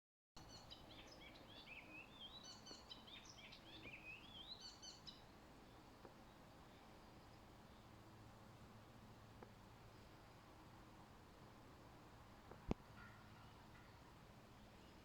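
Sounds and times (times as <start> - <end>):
songbird singing: 0.4 - 8.8, 12.4 - 15.0
steady background hiss: 0.4 - 15.0.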